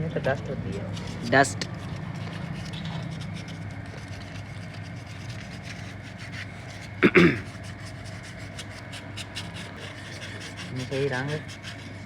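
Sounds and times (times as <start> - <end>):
steady low hum: 0.0 - 12.0
rubbing and scraping strokes: 0.9 - 12.0.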